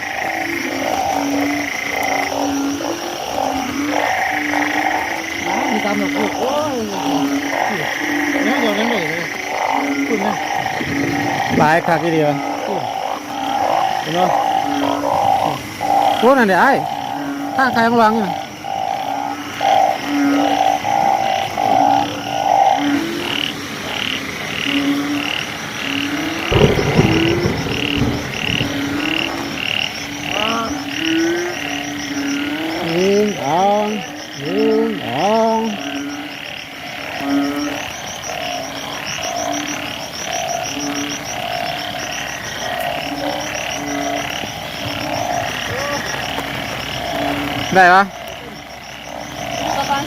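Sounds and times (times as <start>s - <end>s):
chorus of frogs calling: 0.0s - 50.0s
higher frog calls: 0.0s - 50.0s
low steady frog call: 0.0s - 50.0s
high-pitched pulsing chorus: 26.4s - 31.0s.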